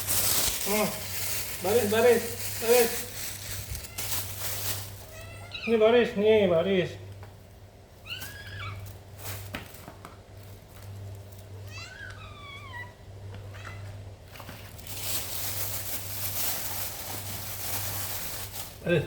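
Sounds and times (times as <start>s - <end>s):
steady hiss-like noise: 0.0s - 7.1s
cats meowing: 2.4s - 6.2s, 8.0s - 9.1s, 11.4s - 14.5s.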